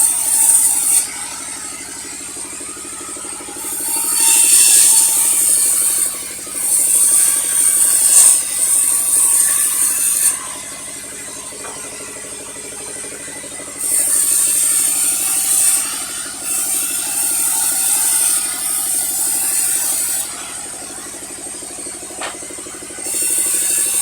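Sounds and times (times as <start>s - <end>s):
saw cutting through log: 0.0s - 24.0s
sawmill machinery running: 0.0s - 24.0s.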